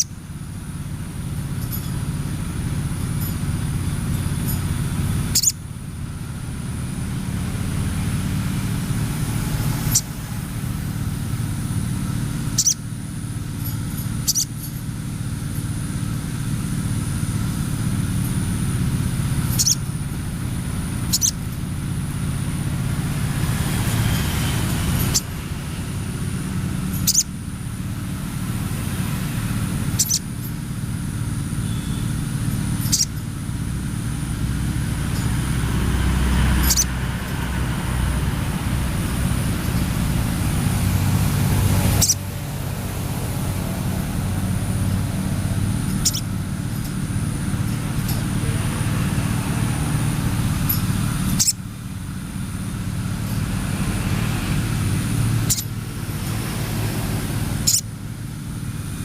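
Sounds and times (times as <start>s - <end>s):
sharp bird call: 5.4s - 5.6s, 12.6s - 12.8s, 19.6s - 19.8s, 21.1s - 21.4s, 32.8s - 33.1s.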